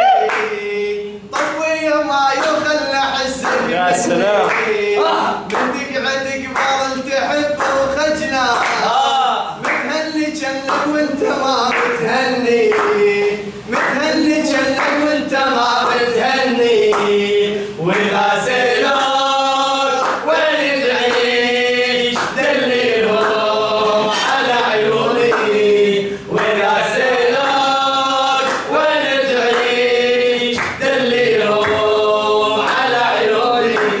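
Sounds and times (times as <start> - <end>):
voices singing melody: 0.0 - 34.0.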